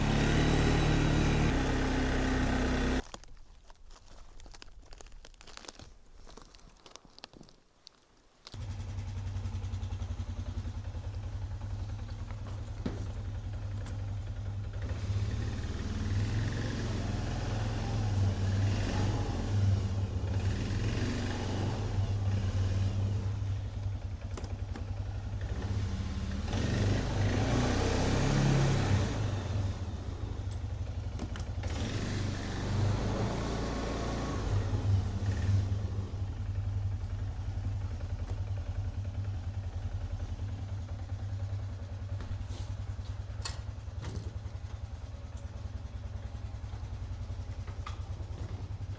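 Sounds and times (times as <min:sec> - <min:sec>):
small engine revving: 0:00.0 - 0:03.0, 0:14.6 - 0:23.6, 0:25.2 - 0:30.6, 0:31.4 - 0:36.3.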